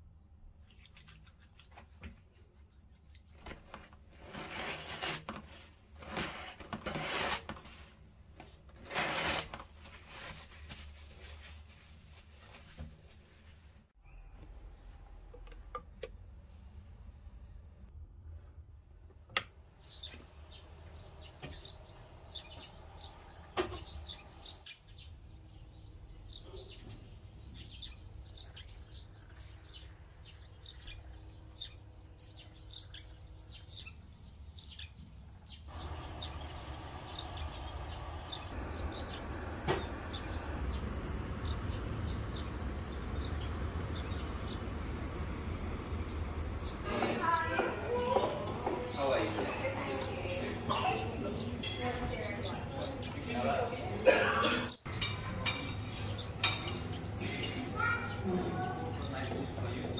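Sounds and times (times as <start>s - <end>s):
small birds chirping: 19.7s - 59.9s.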